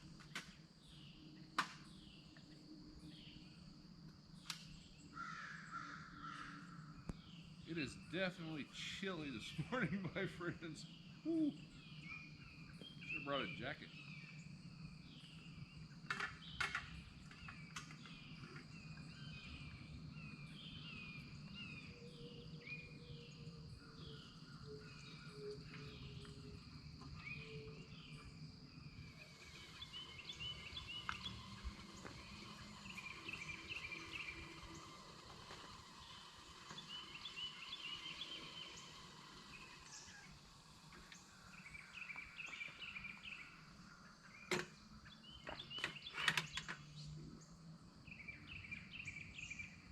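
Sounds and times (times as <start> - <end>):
birds rapid trilled notes: 4.4 - 46.9.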